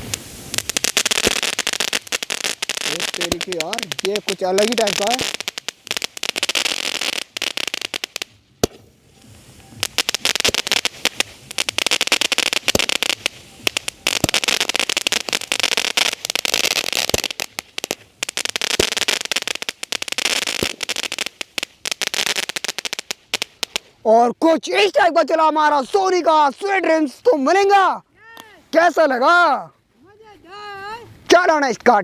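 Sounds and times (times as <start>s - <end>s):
firework bangs: 0.0s - 24.0s
firework crackling: 0.0s - 29.6s.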